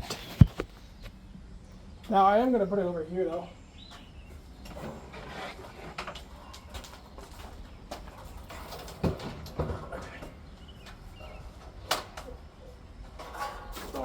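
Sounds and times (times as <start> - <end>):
fan set down with thumps: 8.5 - 10.3
metal fan handling clicks and knocks: 13.0 - 14.0.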